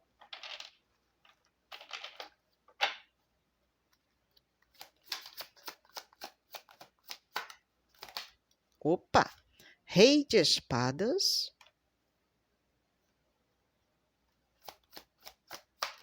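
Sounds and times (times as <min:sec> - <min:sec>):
cards shuffled by hand: 0:00.3 - 0:03.0, 0:03.9 - 0:08.5, 0:14.6 - 0:16.0.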